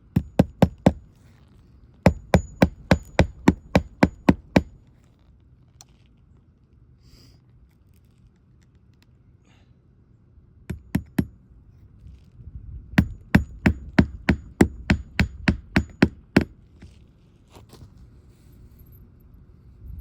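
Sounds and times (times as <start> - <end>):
hammer striking nail: 0.0 - 1.0, 2.1 - 4.7, 10.7 - 11.3, 13.0 - 16.6.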